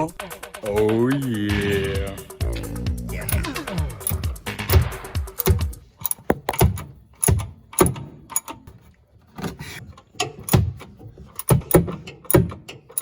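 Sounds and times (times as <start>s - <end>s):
hand tools clanking on metal: 3.3s - 8.8s, 10.0s - 13.0s.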